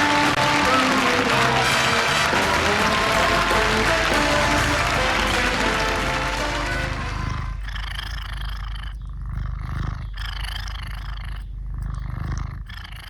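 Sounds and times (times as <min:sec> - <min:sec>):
song: 0:00.0 - 0:07.6
cat purring: 0:02.0 - 0:13.0.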